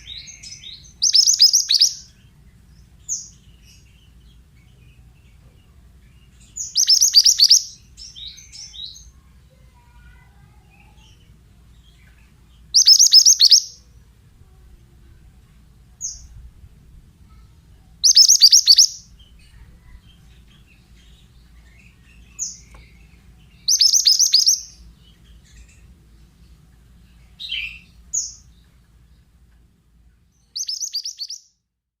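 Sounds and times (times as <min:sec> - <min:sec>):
bird trilling: 0:00.0 - 0:02.1, 0:06.6 - 0:08.9, 0:12.7 - 0:13.8, 0:18.0 - 0:19.1, 0:23.6 - 0:24.8, 0:30.6 - 0:31.4.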